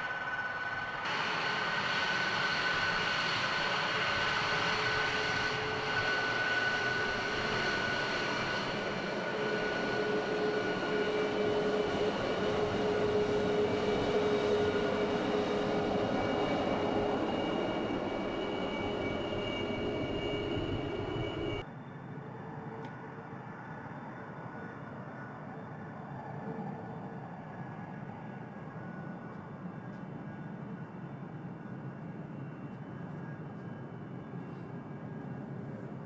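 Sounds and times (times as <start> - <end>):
high whining tones: 0.0 - 21.6
jet engine running: 0.0 - 21.6.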